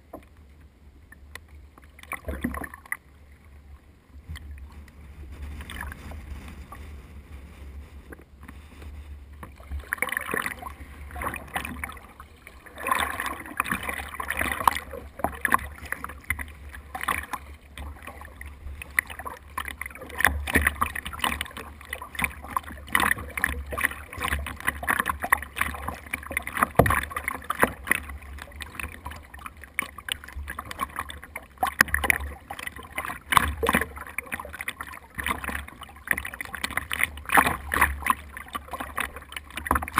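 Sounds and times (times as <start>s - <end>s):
water slapping against boat: 1.3s - 3.1s, 4.2s - 39.9s
steady low rumble: 3.0s - 9.9s.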